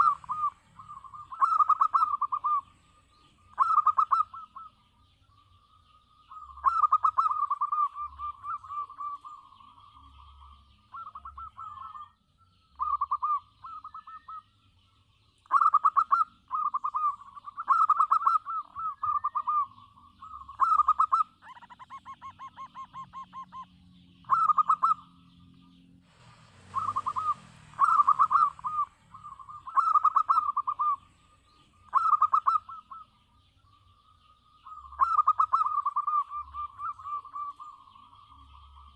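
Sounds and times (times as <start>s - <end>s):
dove cooing: 0.0s - 4.8s, 6.3s - 14.5s, 15.4s - 25.3s, 26.1s - 33.3s, 34.6s - 38.9s.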